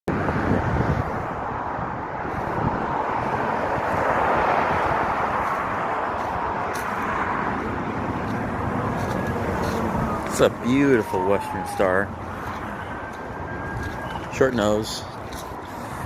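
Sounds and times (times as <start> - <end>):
traffic noise rushing hum: 0.1 - 16.0.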